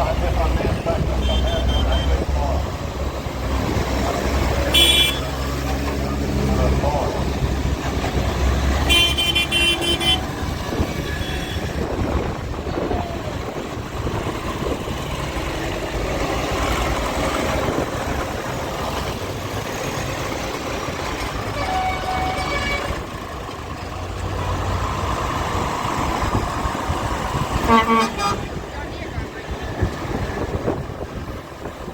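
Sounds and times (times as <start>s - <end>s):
engines running: 0.0s - 31.9s
vehicle horn: 1.2s - 2.2s, 4.7s - 5.4s, 8.8s - 10.4s, 11.0s - 11.9s, 21.5s - 23.0s, 27.6s - 28.6s.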